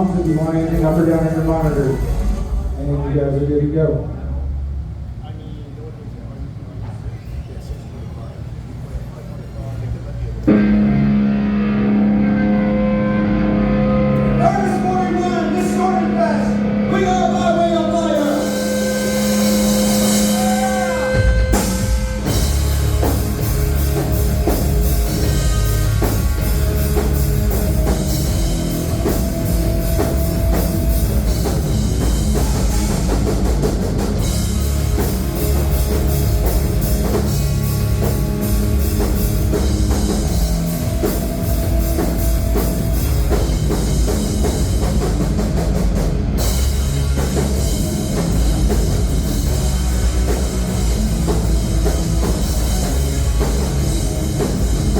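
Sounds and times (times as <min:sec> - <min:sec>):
live rock band playing: 0:00.0 - 0:02.9, 0:10.5 - 0:54.9.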